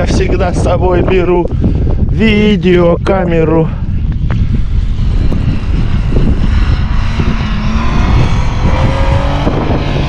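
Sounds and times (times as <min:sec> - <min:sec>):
wind buffeting microphone: 0:00.0 - 0:10.0
car engine labouring at high revs: 0:04.6 - 0:10.0.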